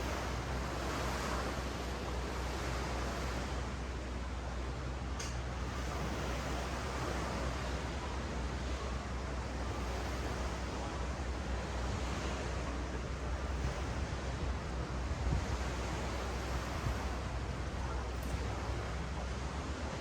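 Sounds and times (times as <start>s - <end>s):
ocean waves on beach: 0.0s - 20.0s
wind rumble on microphone: 5.4s - 20.0s.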